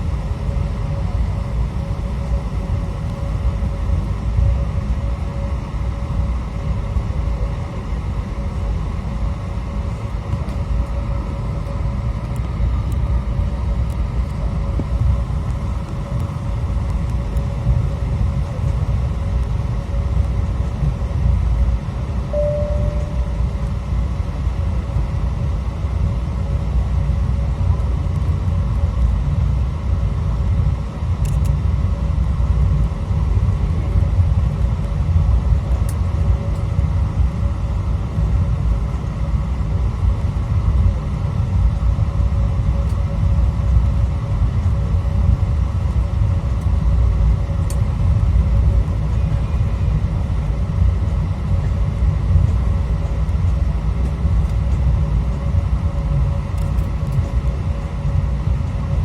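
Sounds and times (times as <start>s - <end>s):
airplane cabin low rumble: 0.0s - 59.0s
thin constant hum: 22.2s - 24.4s.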